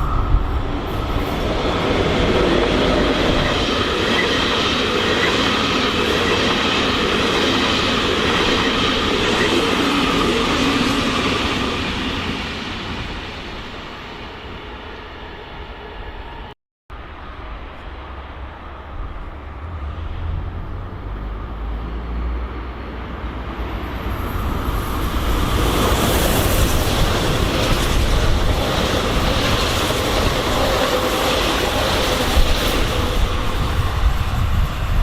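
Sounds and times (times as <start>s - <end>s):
train passing: 0.0s - 35.0s.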